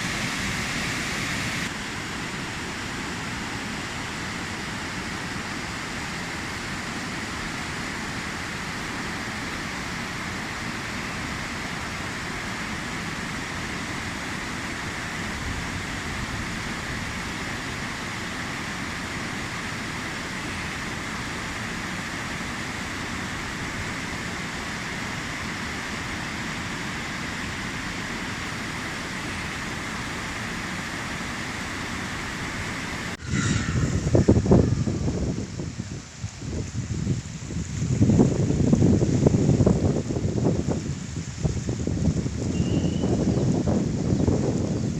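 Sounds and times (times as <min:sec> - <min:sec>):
river water rushing: 0:00.0 - 0:44.9
wind buffeting microphone: 0:33.0 - 0:44.9.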